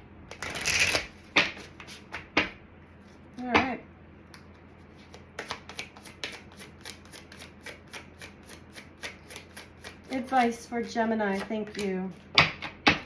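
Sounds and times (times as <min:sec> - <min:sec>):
cards being shuffled: 0:00.3 - 0:02.5.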